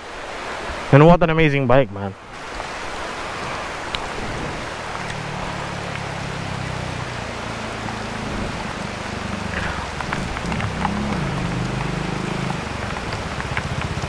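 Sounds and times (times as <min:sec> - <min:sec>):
wind and rain hiss: 0:00.0 - 0:14.0
motorcycle engine running: 0:03.6 - 0:14.0.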